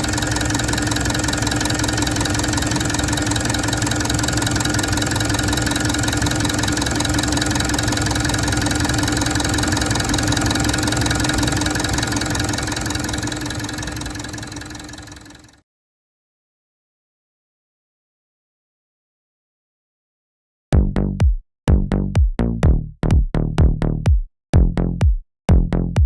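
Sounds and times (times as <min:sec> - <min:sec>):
diesel engine idling with clatter: 0:00.0 - 0:15.5.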